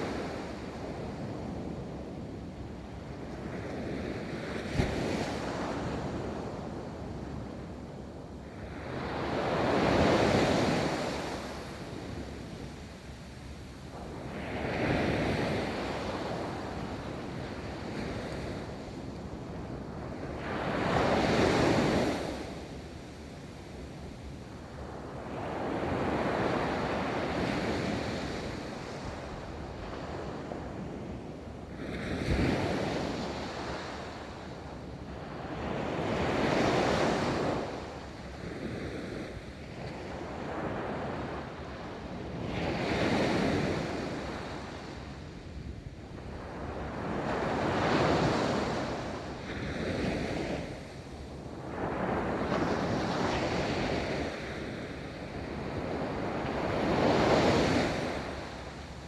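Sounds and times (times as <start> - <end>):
waves breaking on a beach: 31.8 - 59.0.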